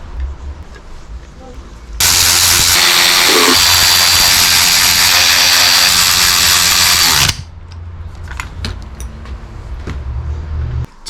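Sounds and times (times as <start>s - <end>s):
power drill driving bolts: 2.0s - 7.4s.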